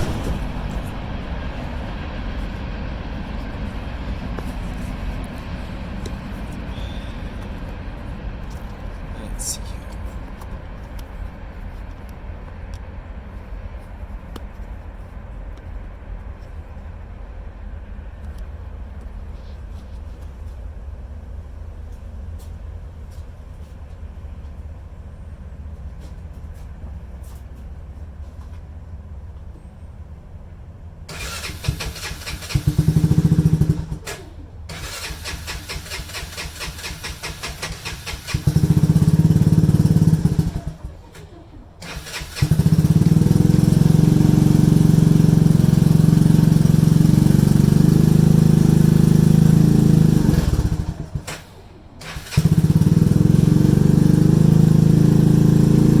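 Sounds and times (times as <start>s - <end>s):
atv engine cranking and running: 0.0s - 12.0s, 31.1s - 56.0s.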